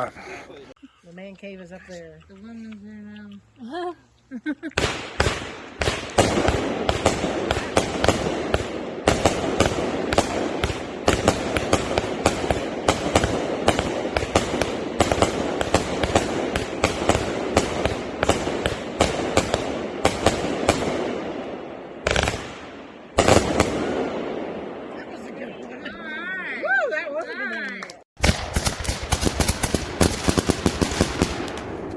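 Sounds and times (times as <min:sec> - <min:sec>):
firework bangs: 0:04.8 - 0:25.3, 0:28.2 - 0:31.9
firework cake cracking and popping: 0:28.2 - 0:31.9.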